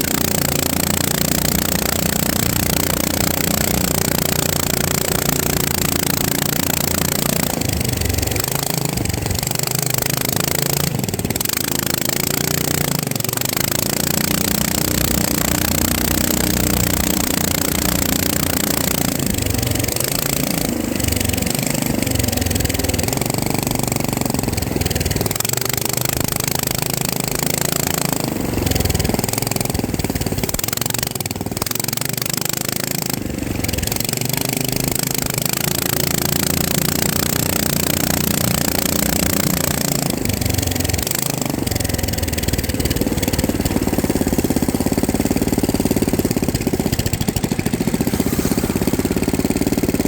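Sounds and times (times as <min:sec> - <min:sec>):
drone motors and propellers buzzing: 0:32.6 - 0:50.0.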